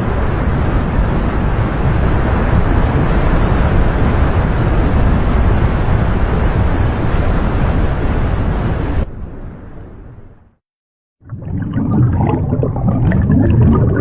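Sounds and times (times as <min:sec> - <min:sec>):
gushing water: 0:11.2 - 0:14.0.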